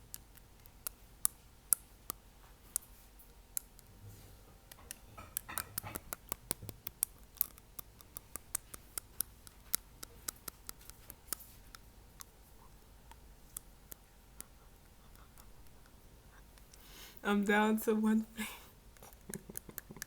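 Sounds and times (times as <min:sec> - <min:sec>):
fingernail tapping on teeth: 0:04.7 - 0:12.3, 0:19.0 - 0:20.0.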